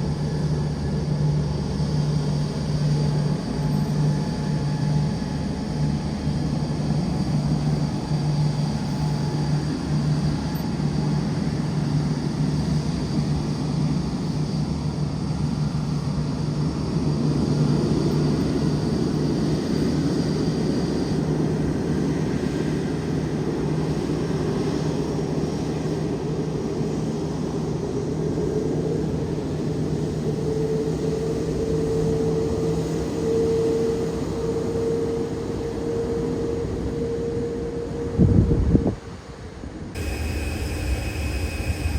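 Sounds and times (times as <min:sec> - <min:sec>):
jet engines idling: 0:00.0 - 0:20.2, 0:40.0 - 0:41.9
faint high whine: 0:40.0 - 0:41.9
mid-pitched rising tone: 0:40.0 - 0:41.9.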